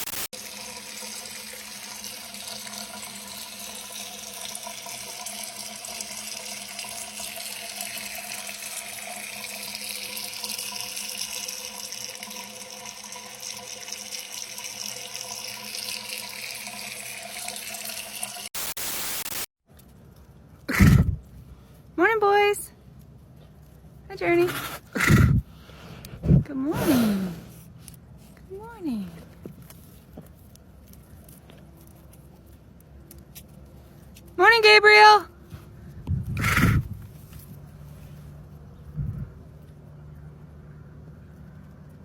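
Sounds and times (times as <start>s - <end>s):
water running from tap: 0.2s - 18.6s.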